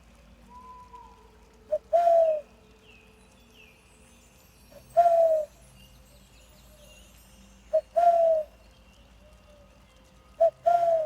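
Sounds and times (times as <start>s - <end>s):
bird hooting call: 0.5s - 2.5s, 5.0s - 5.5s, 7.7s - 8.6s, 10.4s - 11.0s.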